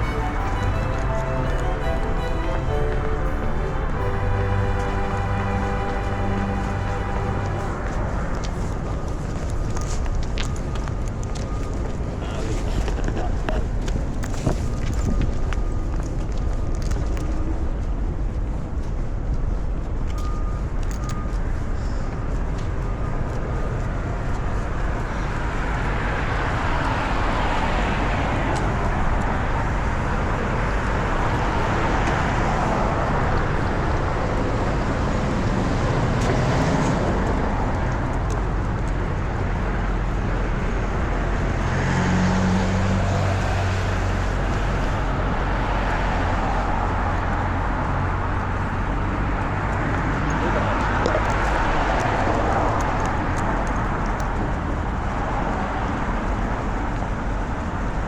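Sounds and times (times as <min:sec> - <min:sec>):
heavy engine hum: 0:00.0 - 0:16.4
cars passing: 0:00.0 - 0:58.0
steady low traffic rumble: 0:00.0 - 0:58.0.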